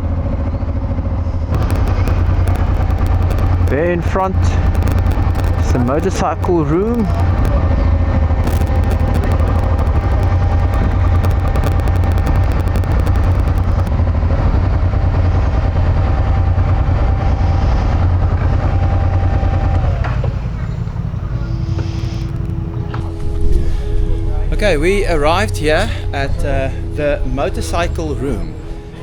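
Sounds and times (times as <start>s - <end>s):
motorcycle engine: 0.7s - 23.3s.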